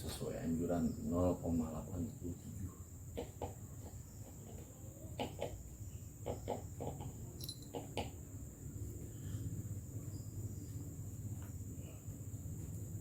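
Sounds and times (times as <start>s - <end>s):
chicken clucking: 3.1s - 8.2s
high-pitched insect drone: 7.4s - 7.7s.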